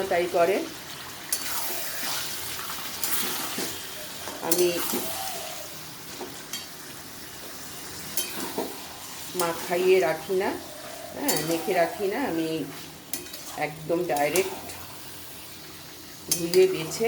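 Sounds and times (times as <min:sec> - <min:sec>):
chicken sizzling in oil: 0:00.0 - 0:17.0
spoon scraping a pan: 0:01.3 - 0:05.6, 0:08.0 - 0:17.0.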